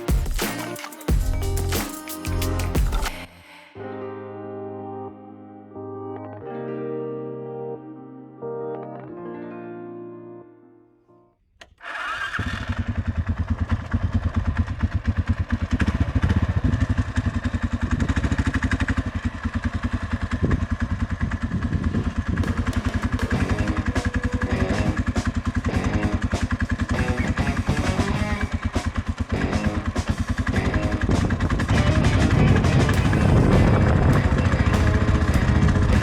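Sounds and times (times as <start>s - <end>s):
single-cylinder engine running: 11.8s - 36.0s.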